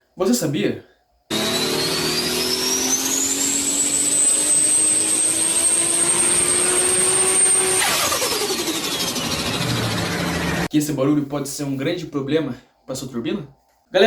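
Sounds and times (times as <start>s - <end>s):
car engine revving: 1.3s - 10.7s.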